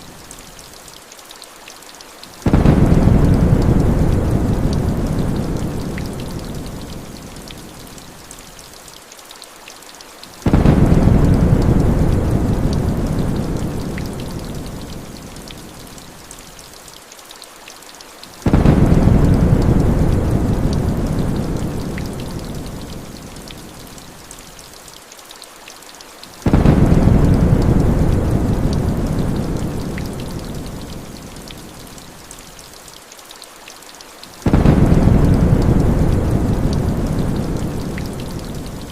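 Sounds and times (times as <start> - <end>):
rain hissing: 0.0 - 38.9
thunder rolling: 2.5 - 5.5, 10.5 - 13.8, 26.5 - 29.8, 34.5 - 38.2.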